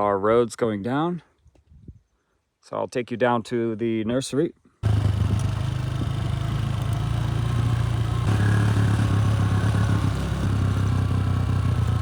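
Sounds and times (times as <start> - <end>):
vehicle engine low drone: 4.8 - 12.0.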